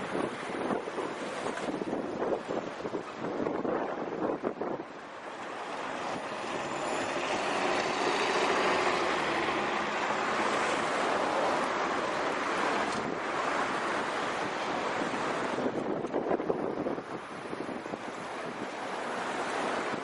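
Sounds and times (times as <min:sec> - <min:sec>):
wind buffeting microphone: 0:00.0 - 0:20.0
truck driving past: 0:05.9 - 0:11.7.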